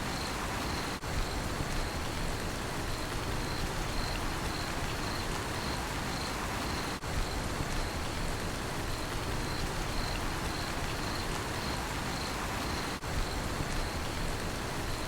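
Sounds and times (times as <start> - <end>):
steady rain falling: 0.0 - 15.0
cricket chirping: 2.9 - 7.0, 9.3 - 13.0.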